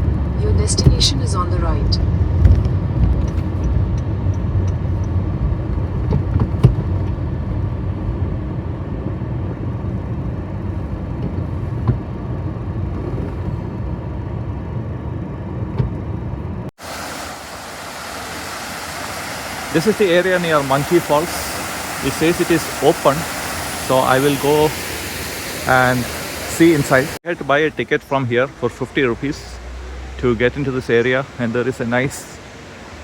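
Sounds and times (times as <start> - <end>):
car road rumble from inside cabin: 0.0 - 16.7
outdoor hiss: 16.8 - 33.0.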